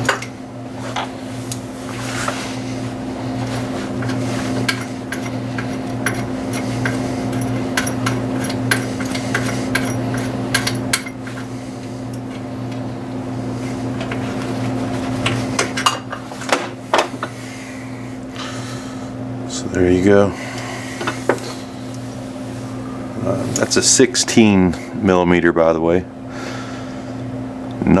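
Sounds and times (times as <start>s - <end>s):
steady low hum: 0.0s - 28.0s
hand tools clinking on metal: 4.0s - 11.4s.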